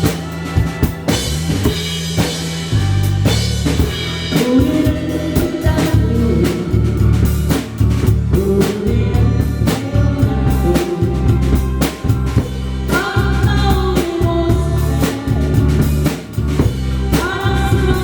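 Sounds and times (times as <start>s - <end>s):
bass line: 0.0s - 18.0s
drum kit playing a beat: 0.0s - 18.0s
person singing: 4.2s - 7.4s, 8.2s - 16.3s, 16.9s - 18.0s.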